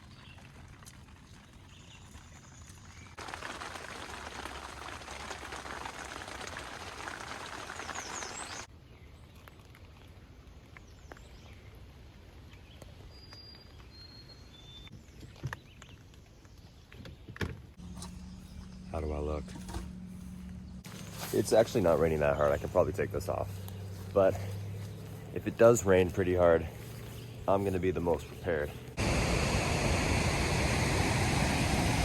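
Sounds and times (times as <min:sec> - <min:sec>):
light rain pattering: 0:00.0 - 0:08.7
steady hiss: 0:29.0 - 0:32.0.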